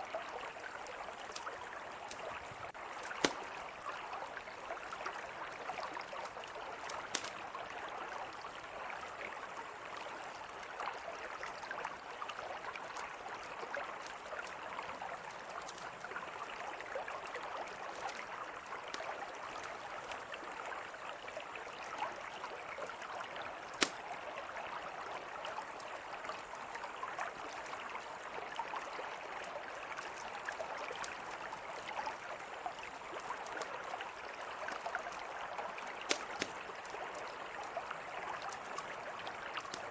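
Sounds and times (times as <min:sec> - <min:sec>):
campfire popping and crackling: 0:01.2 - 0:03.9, 0:06.3 - 0:07.5, 0:17.3 - 0:20.2, 0:23.6 - 0:24.1, 0:35.8 - 0:37.6, 0:38.4 - 0:39.9.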